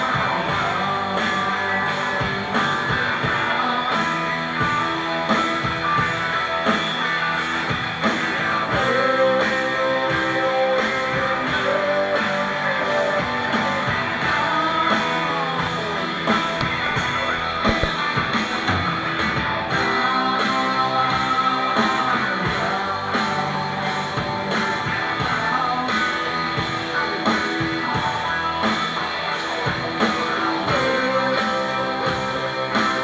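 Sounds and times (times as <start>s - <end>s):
rock band playing: 0.0s - 33.0s
electric guitar bent note: 16.3s - 18.4s.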